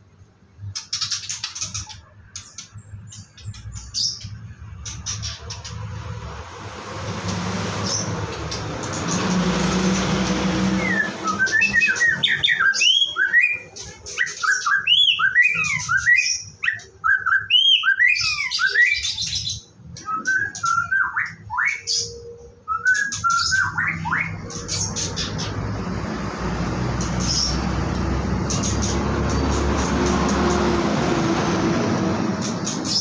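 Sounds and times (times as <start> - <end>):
bird singing whistled phrases: 10.8 - 24.4.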